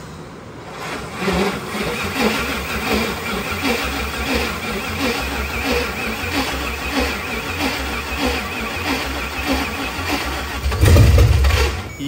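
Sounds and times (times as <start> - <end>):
starter cranking engine: 0.7 - 12.0.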